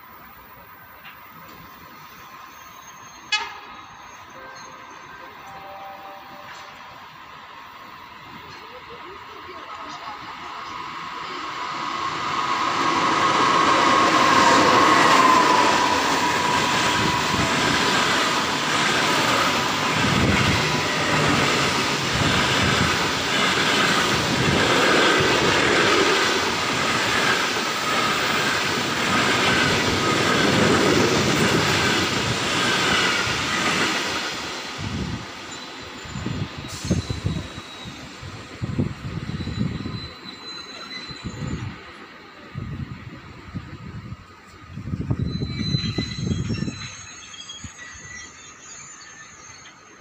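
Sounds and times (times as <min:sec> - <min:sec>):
locomotive whine: 0:01.0 - 0:50.0.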